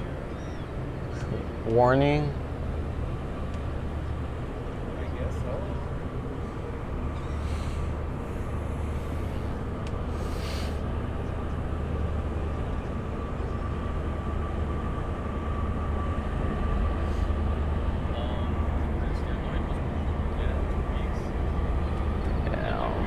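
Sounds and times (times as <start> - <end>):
faint steady whine: 0.0 - 23.0
low engine drone: 0.0 - 23.0.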